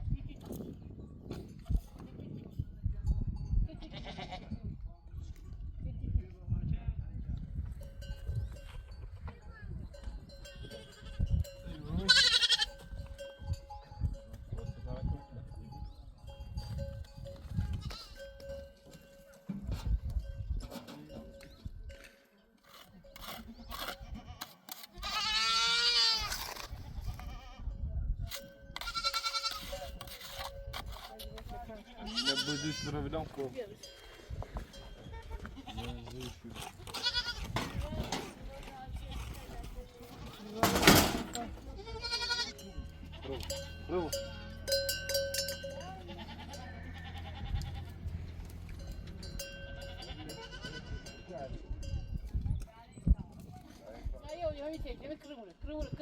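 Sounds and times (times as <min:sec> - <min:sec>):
goat bleating: 0:03.8 - 0:04.5, 0:12.0 - 0:12.9, 0:17.7 - 0:18.2, 0:23.8 - 0:27.6, 0:28.8 - 0:29.8, 0:31.9 - 0:33.0, 0:35.0 - 0:37.6, 0:41.6 - 0:44.7, 0:46.0 - 0:48.1, 0:49.7 - 0:51.1
animal neck bells ringing: 0:07.6 - 0:12.0, 0:12.6 - 0:23.7, 0:33.6 - 0:35.4, 0:42.5 - 0:53.4.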